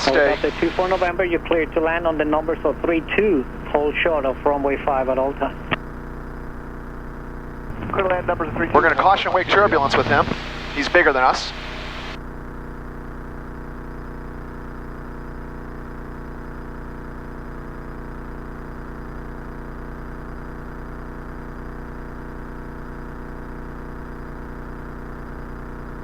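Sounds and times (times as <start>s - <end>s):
plane engine and propeller droning: 0.0s - 5.8s, 7.7s - 12.2s.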